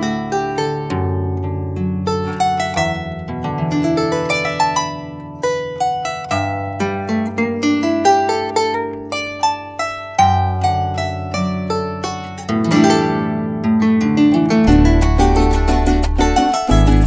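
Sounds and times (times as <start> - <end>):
harp plucked melody: 0.0 - 17.0
held low bass notes: 14.7 - 17.0.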